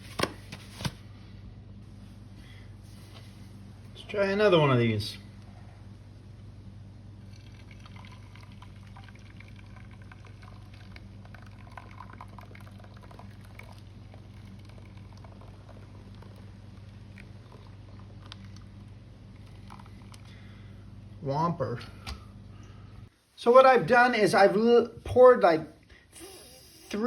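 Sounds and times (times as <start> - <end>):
steady low hum: 0.0 - 27.0
molten lead pouring: 7.2 - 18.8.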